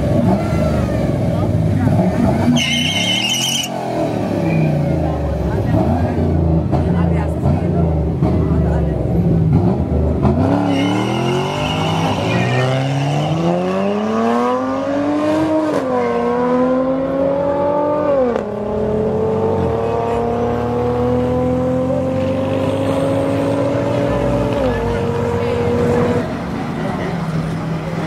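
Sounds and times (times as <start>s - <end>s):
car engine accelerating hard: 3.8s - 28.0s.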